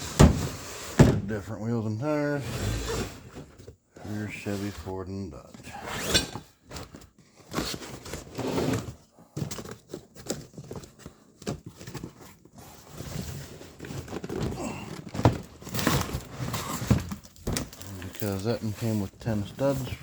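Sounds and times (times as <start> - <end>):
plastic and paper crinkling: 9.3 - 20.0.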